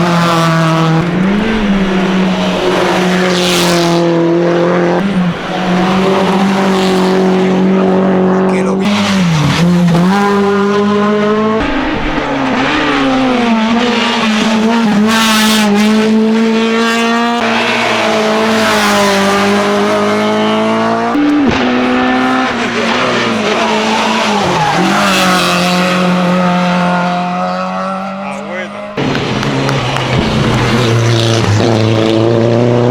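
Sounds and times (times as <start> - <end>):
race car engine at high revs: 0.0 - 32.9
sharp engine crack: 11.6 - 16.1.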